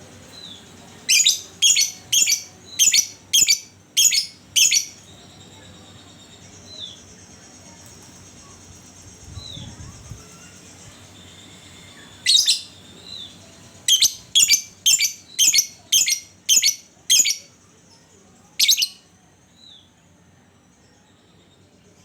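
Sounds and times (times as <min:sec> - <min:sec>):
lovebird shrill calls: 0:01.1 - 0:05.0, 0:12.2 - 0:13.2, 0:13.9 - 0:17.4, 0:18.6 - 0:19.0.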